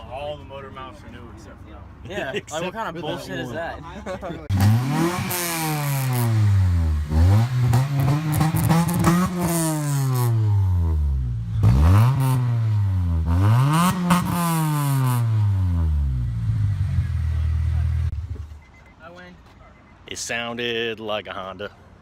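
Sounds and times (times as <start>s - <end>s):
car engines revving hard: 4.5s - 18.4s.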